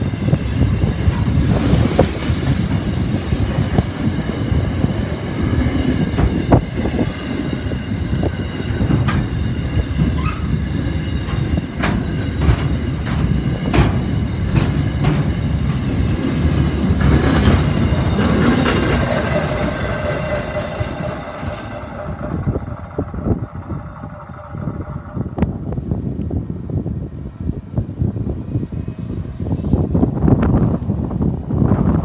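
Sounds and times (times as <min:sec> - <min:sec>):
freight train rumbling past: 0:00.0 - 0:32.0
wheels clacking on rail joints: 0:08.1 - 0:25.9.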